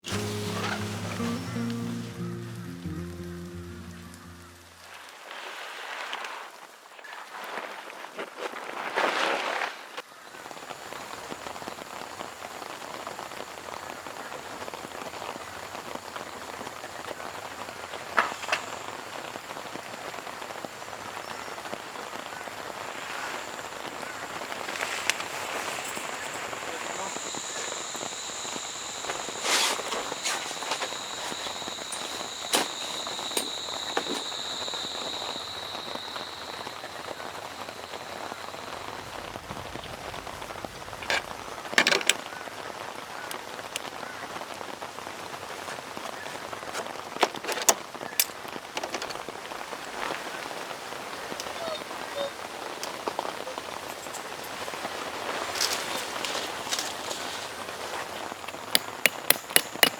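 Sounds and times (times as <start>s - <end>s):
steady rain falling: 0.0s - 8.8s, 9.4s - 59.9s
high steady whine: 22.1s - 41.2s
scattered taps and knocks: 58.5s - 59.9s.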